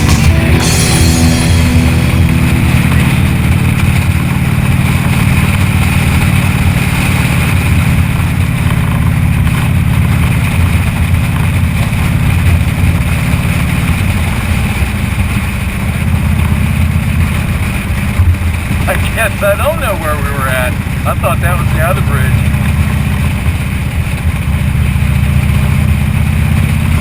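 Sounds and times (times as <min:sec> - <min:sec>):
motorcycle engine running: 0:00.0 - 0:27.0
road noise: 0:00.0 - 0:27.0.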